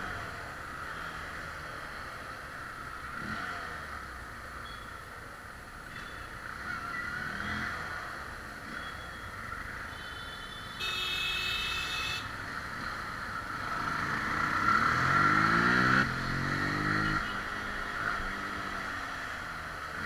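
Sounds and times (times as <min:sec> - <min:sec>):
motorcycle engine revving: 0:12.4 - 0:20.0.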